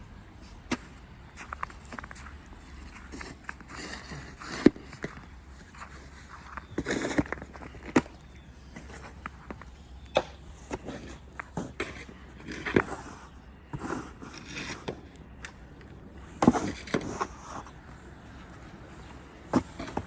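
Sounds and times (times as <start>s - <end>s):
scraping snow and ice: 0.4s - 9.6s, 10.7s - 15.0s, 16.4s - 17.8s.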